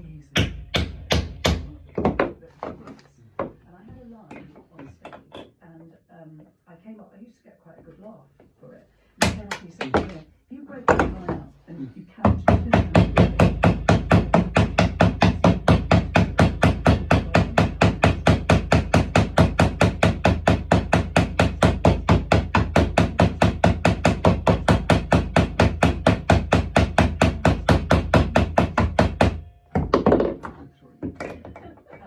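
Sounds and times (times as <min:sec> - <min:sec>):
hammer tapping nails into wood: 0:12.3 - 0:32.0.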